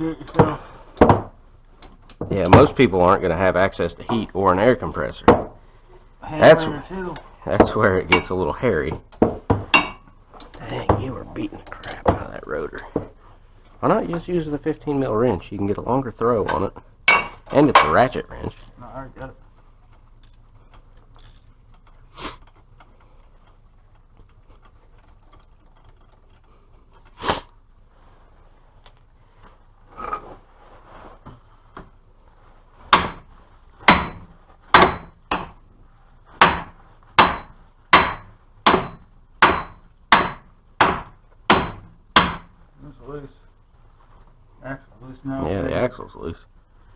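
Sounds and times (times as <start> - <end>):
hammer blows on steel: 36.4 - 42.5.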